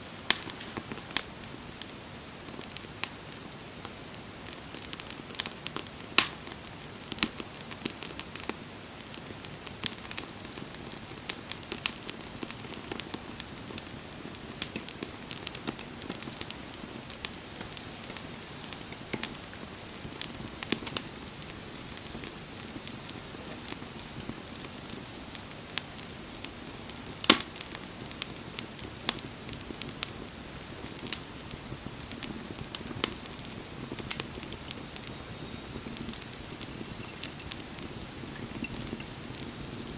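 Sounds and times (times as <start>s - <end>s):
fire snaps and pops: 0.0s - 2.0s, 4.5s - 39.9s
bonfire crackling: 0.0s - 39.9s
soft steady hiss: 0.0s - 39.9s.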